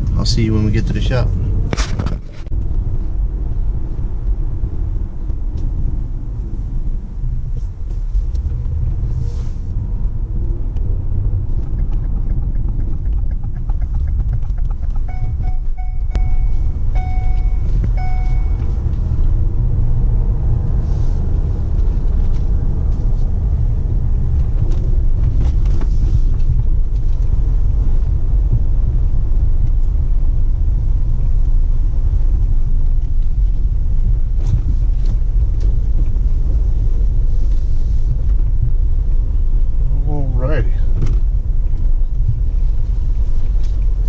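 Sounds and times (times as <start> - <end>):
vehicle road rumble: 0.0 - 44.0
short beeps: 15.1 - 18.8.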